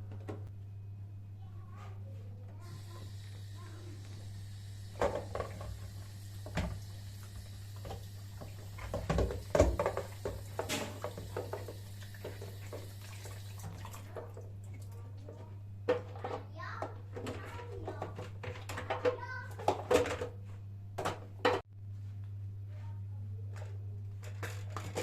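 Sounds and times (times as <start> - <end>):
water running from tap into sink: 2.6 - 15.0
knocks and clatter of handled objects: 7.8 - 12.9, 15.3 - 21.7, 23.5 - 25.0.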